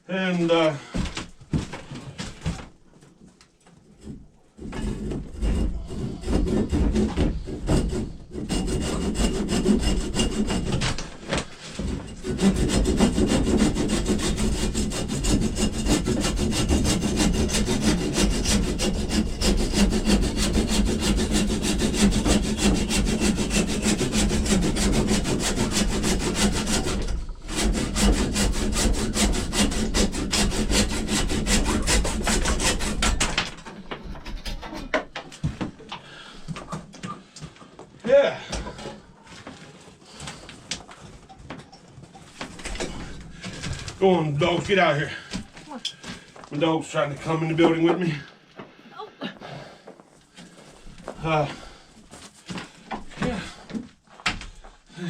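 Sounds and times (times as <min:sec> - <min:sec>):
saw cutting wood: 0:04.0 - 0:35.1.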